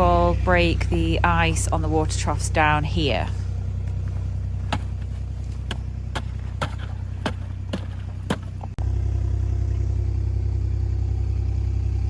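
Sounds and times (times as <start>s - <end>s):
vehicle engine idling: 0.0s - 12.0s
knocks breaking ice: 4.6s - 8.8s.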